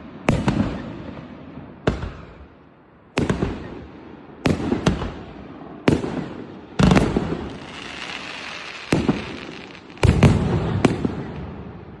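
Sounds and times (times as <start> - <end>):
firework bursts: 6.8 - 11.3
firework crackle: 6.8 - 11.3.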